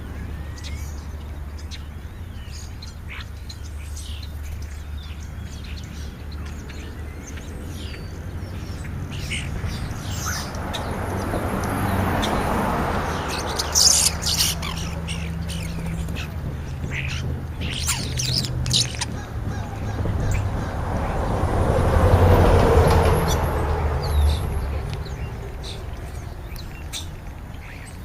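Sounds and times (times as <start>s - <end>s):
starlings chirping and squawking: 0.0s - 28.0s
broad rushing noise: 8.2s - 27.5s.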